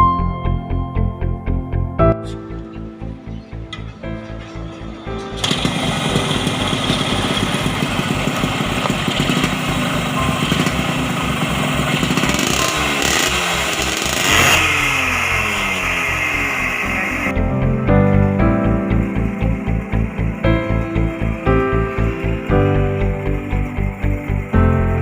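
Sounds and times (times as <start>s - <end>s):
two-stroke engine popping: 3.7s - 17.4s.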